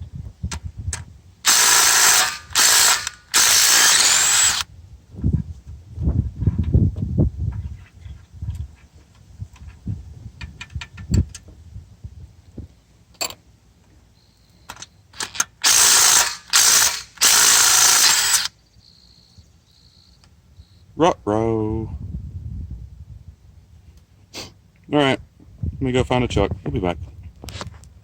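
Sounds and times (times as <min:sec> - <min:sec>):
power ratchet spinning bolts: 0:01.5 - 0:04.6, 0:15.2 - 0:18.5.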